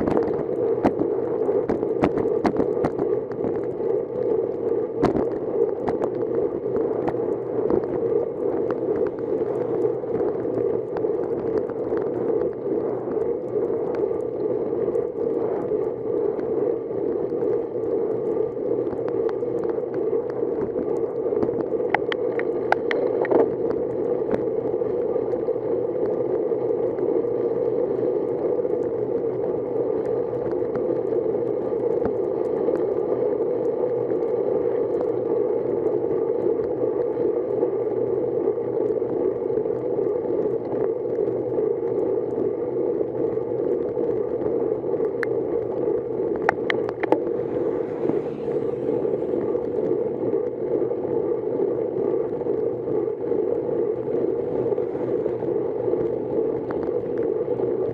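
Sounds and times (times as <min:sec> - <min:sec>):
bicycle tyres on wet road: 0:00.0 - 0:27.2, 0:44.7 - 0:53.2, 0:53.8 - 0:57.9
wind on microphone: 0:00.0 - 0:57.9.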